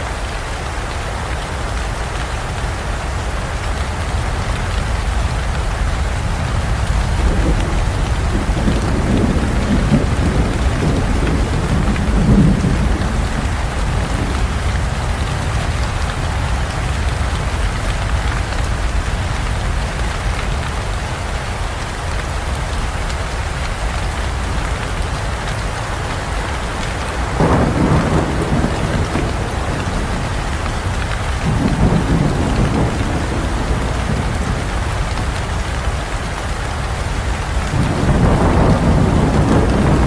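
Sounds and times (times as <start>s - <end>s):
heavy rain falling: 0.0s - 40.0s
rolling thunder: 4.2s - 19.7s, 24.2s - 36.2s, 37.1s - 40.0s.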